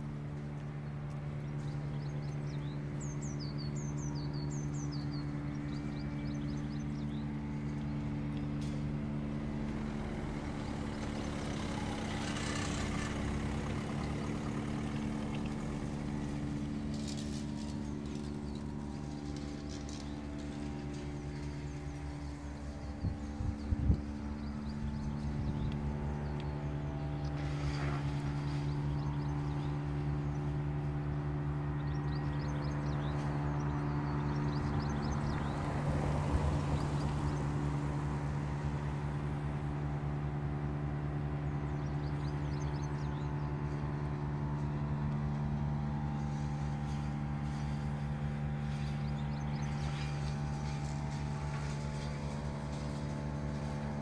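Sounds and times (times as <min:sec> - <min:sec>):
vehicle engine idling: 0:00.0 - 0:54.0
passing vehicle rush: 0:08.8 - 0:18.4.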